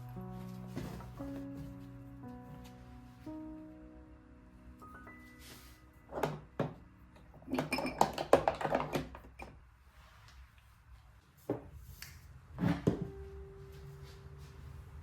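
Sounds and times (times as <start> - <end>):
small containers clattering: 7.4 - 9.5.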